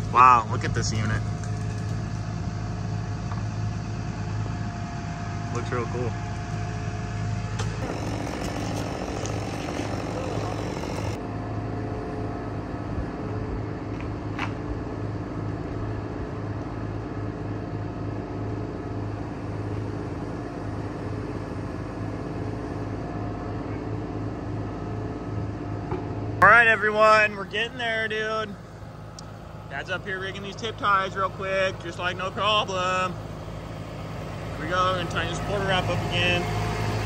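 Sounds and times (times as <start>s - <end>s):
lift truck engine running: 0.0s - 11.2s, 26.4s - 37.0s.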